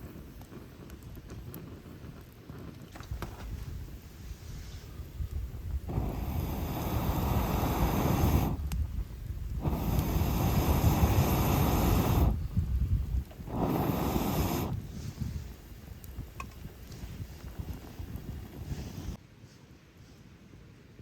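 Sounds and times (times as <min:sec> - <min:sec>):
rushing air: 0:03.5 - 0:19.2.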